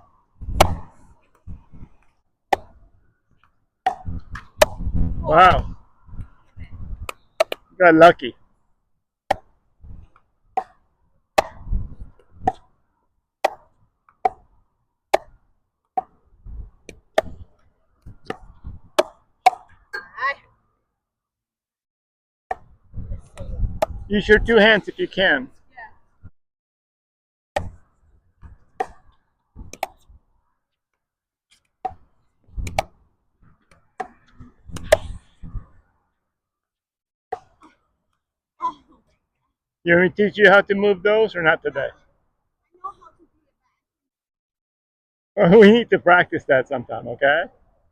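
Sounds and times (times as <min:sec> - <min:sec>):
wind rumbling on microphone: 0:00.3 - 0:02.0, 0:04.0 - 0:07.2, 0:11.5 - 0:12.5, 0:16.4 - 0:19.0, 0:22.7 - 0:24.8, 0:33.4 - 0:35.8
racket striking ball: 0:00.5 - 0:00.9, 0:03.8 - 0:04.8, 0:11.4 - 0:11.6, 0:16.9 - 0:17.4, 0:18.2 - 0:19.8, 0:28.8 - 0:29.0, 0:32.6 - 0:33.0.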